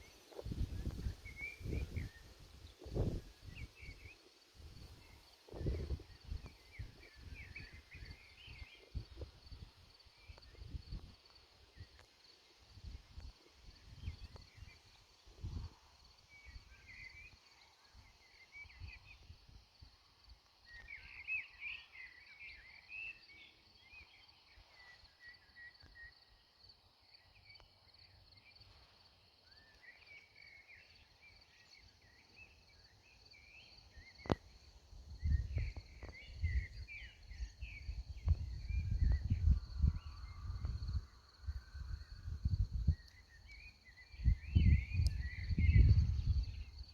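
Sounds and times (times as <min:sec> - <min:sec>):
wind rumble on microphone: 0:00.0 - 0:12.0, 0:12.7 - 0:17.2, 0:34.0 - 0:46.9.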